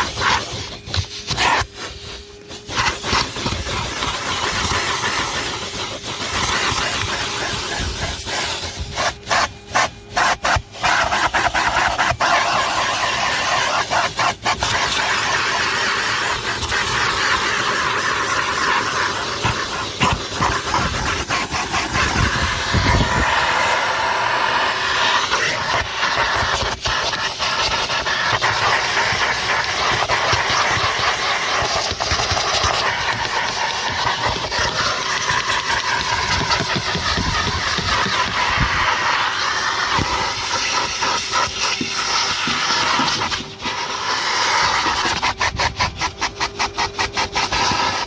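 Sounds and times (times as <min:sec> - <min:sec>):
vacuum cleaner running: 0:00.0 - 0:48.0.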